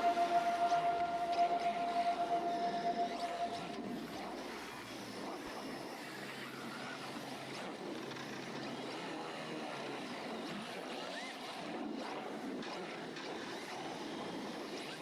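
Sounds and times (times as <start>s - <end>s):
short electric whines: 0.0s - 3.8s.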